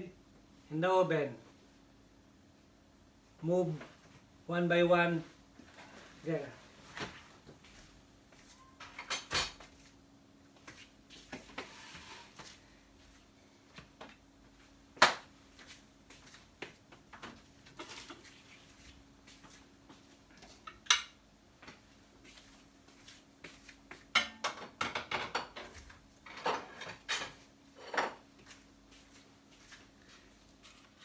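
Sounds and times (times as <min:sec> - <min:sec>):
dishes and utensils clinking: 0:24.2 - 0:25.7.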